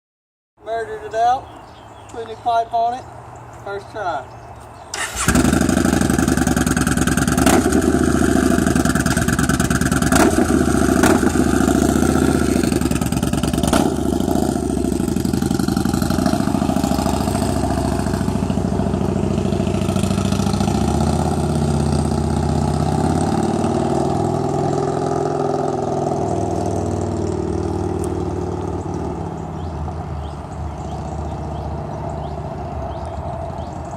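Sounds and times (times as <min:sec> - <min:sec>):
sharp exhaust cracks: 0:04.9 - 0:24.7.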